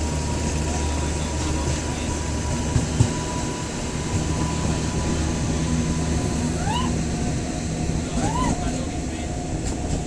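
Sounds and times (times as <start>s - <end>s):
train low rumble: 0.0s - 10.0s.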